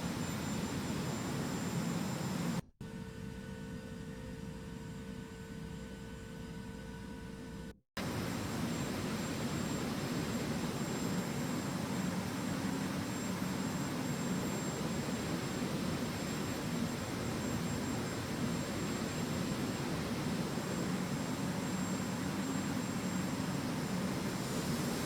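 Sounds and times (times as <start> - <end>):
faint high whines: 8.0 - 25.0
jet engine and airflow rush: 8.0 - 25.0.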